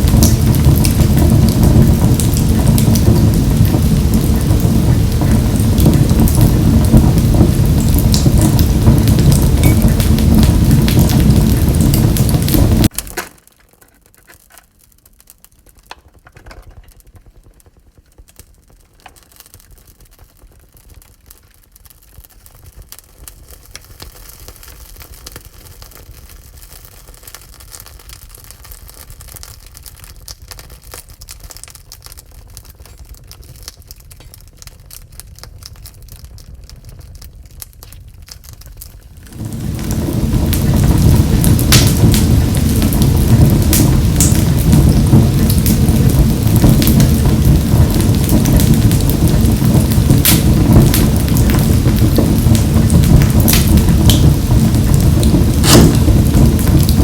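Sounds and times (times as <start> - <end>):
low rumble: 0.0 - 12.9, 39.2 - 57.0
wood fire crackling: 0.0 - 57.0
loud rushing sound: 39.3 - 43.0, 55.2 - 57.0.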